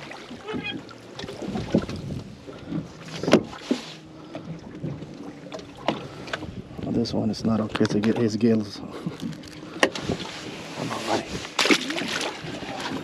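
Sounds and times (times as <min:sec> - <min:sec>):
wind on microphone: 0:01.4 - 0:03.5.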